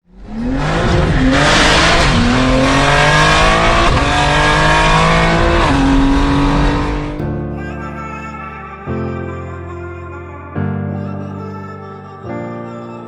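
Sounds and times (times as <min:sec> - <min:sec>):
car engine revving through gears: 0:00.1 - 0:07.2.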